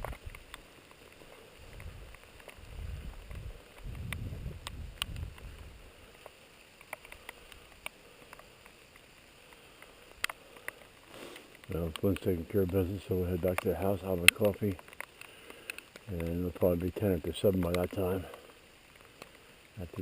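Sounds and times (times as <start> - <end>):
small sharp clicks: 0.0 - 20.0
wind buffeting microphone: 1.6 - 5.8.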